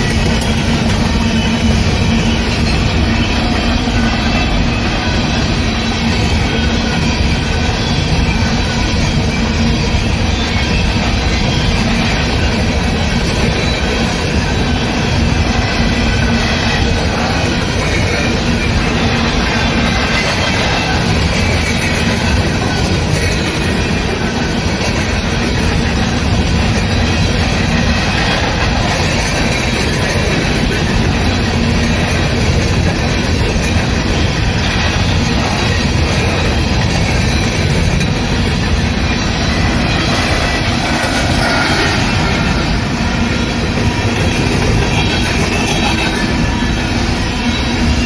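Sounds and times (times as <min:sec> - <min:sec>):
train wheels clattering over rails: 0:00.0 - 0:48.0.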